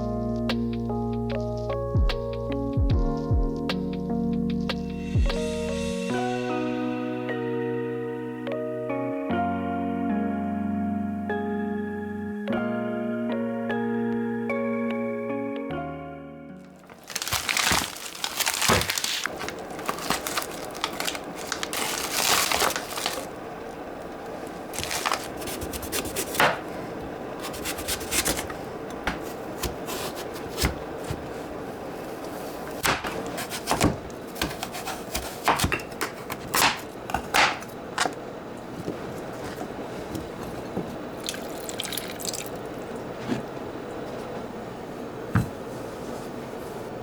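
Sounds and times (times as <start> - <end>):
packaging rustling: 16.6 - 23.4, 24.4 - 26.8, 27.4 - 31.5
steady background hiss: 16.6 - 47.0.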